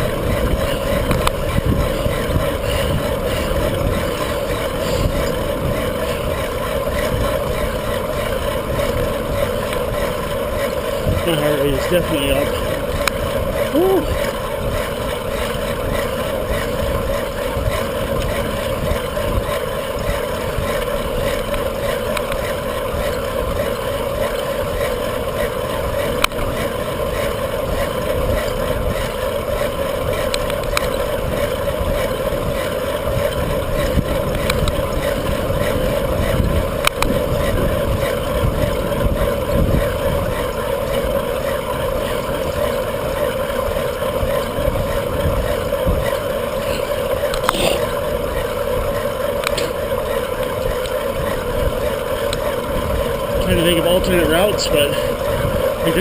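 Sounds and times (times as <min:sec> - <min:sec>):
wind rushing over microphone: 0:00.0 - 0:15.0, 0:30.0 - 0:43.1, 0:50.5 - 0:56.0
constant hum: 0:00.0 - 0:56.0.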